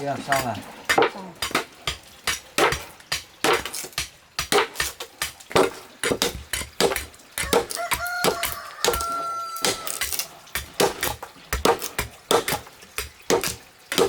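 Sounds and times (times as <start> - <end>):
sharp knocks: 0.3 - 14.0
rooster crowing: 7.5 - 10.0.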